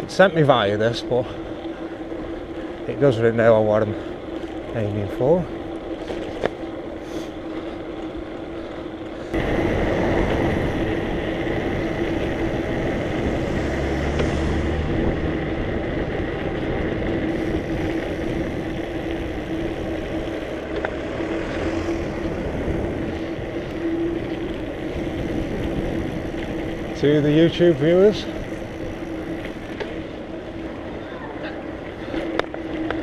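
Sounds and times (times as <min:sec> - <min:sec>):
constant hum: 0:00.0 - 0:33.0
street traffic: 0:00.0 - 0:33.0.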